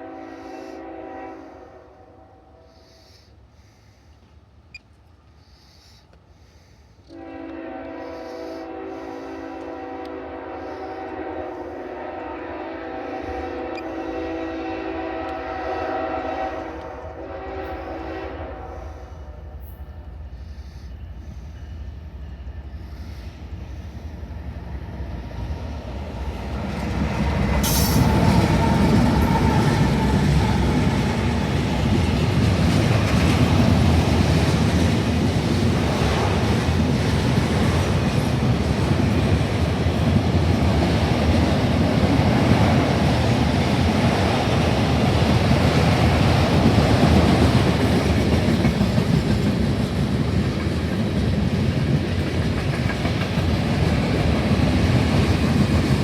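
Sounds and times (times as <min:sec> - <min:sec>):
freight train rumbling past: 0:00.0 - 0:56.0
high squeal of train wheels: 0:04.7 - 0:11.9, 0:12.8 - 0:14.5, 0:15.3 - 0:32.3.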